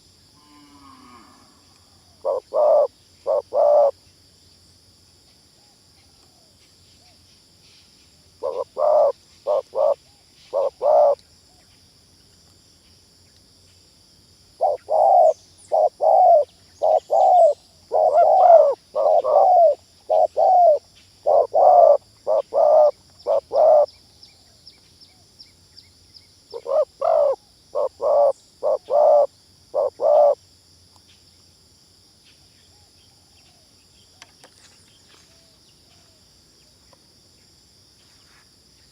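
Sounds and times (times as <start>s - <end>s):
dove cooing: 2.2s - 3.9s, 8.4s - 11.2s, 14.6s - 23.9s, 26.5s - 30.4s.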